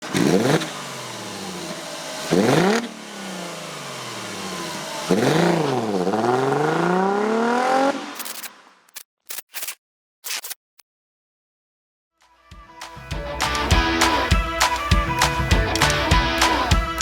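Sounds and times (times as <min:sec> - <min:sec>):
vehicle engine revving: 0:00.0 - 0:08.6.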